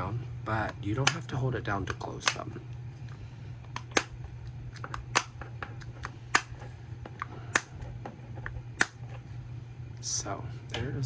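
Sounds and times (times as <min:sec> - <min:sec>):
plastic lids snapping shut: 0:00.7 - 0:02.4, 0:03.7 - 0:09.0.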